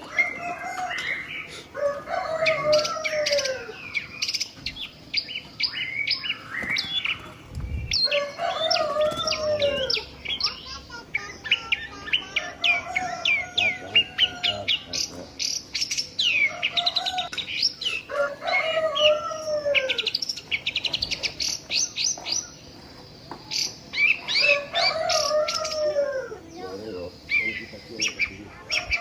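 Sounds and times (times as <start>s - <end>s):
lower falling bird calls: 0.0s - 11.0s
small birds chirping: 0.0s - 29.0s.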